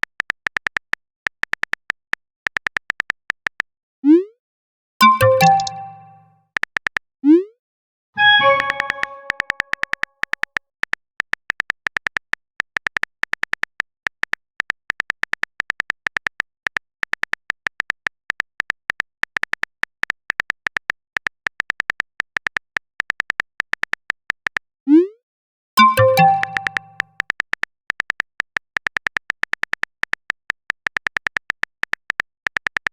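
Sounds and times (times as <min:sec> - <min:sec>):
chime: 0:05.0 - 0:06.3, 0:08.2 - 0:09.6, 0:25.8 - 0:27.0
clicking typing beeps: 0:05.0 - 0:06.3, 0:08.2 - 0:10.5, 0:25.8 - 0:32.9.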